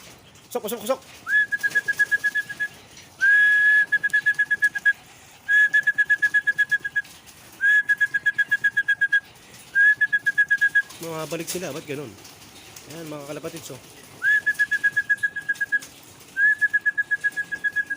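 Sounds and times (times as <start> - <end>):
trilled whistle: 1.3 - 9.2, 9.8 - 10.9, 14.2 - 17.9.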